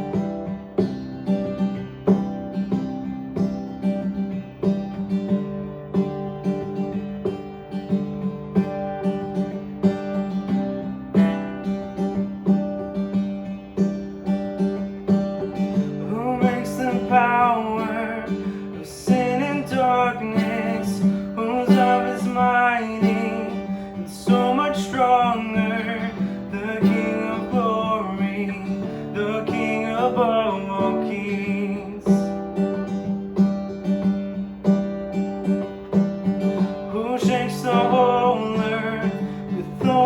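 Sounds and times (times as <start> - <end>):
strummed acoustic guitar: 0.0 - 40.0
person singing: 16.0 - 32.4, 36.9 - 40.0.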